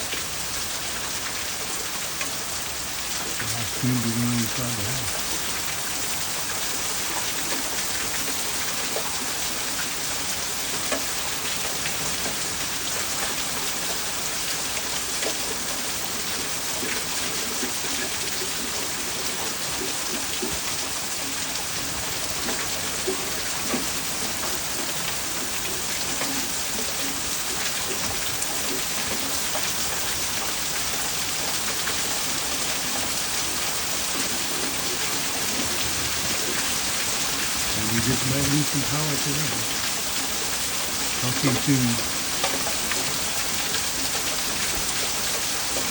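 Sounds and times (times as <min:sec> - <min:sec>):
rain drops ticking: 0:00.0 - 0:45.9
heavy rain hiss: 0:02.4 - 0:09.3, 0:30.7 - 0:45.9.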